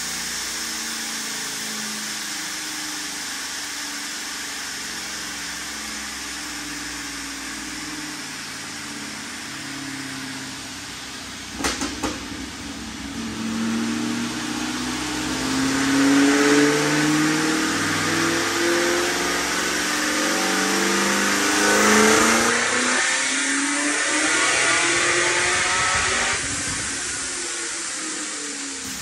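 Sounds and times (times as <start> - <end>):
car engine revving on a dyno: 0.0 - 29.0
sharp knocks: 11.6 - 12.5.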